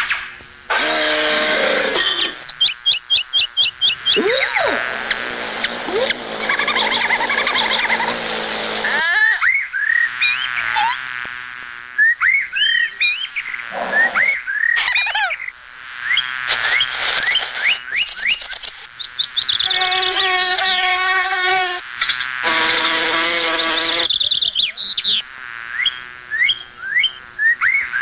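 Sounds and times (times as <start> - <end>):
short chirps rising and falling: 0.0 - 10.6
dense chorus of animal calls: 0.0 - 11.1, 12.0 - 16.9, 19.4 - 28.0.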